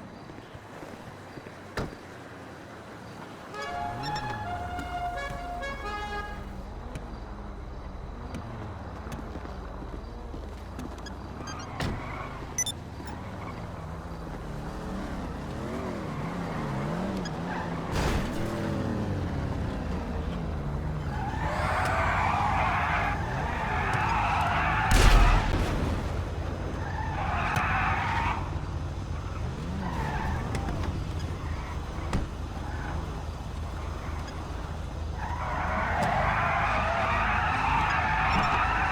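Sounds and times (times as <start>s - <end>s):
car engines revving: 0.7s - 38.9s
tyres screeching: 3.5s - 6.7s, 8.3s - 38.9s
loud bang: 24.9s - 26.2s.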